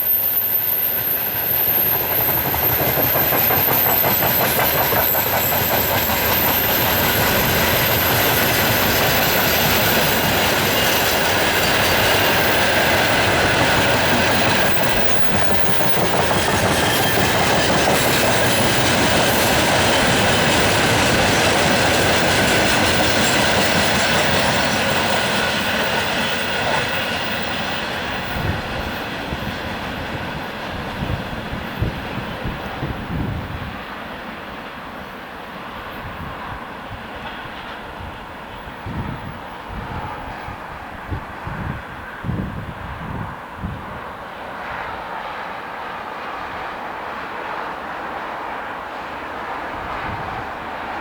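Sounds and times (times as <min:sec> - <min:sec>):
wheel squeal: 0:00.0 - 0:28.9
train wheels clattering: 0:00.6 - 0:33.0.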